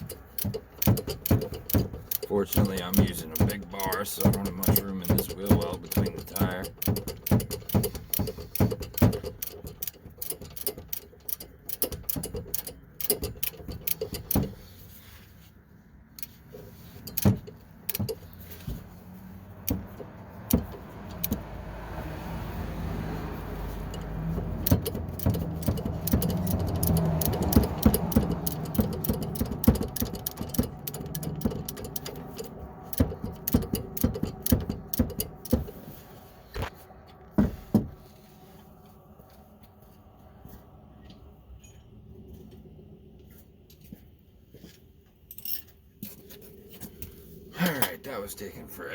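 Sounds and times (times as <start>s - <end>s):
ratchet wrench clicking: 0.0s - 14.6s, 16.2s - 18.3s, 19.6s - 21.5s, 23.7s - 35.8s
low hum: 18.8s - 44.5s.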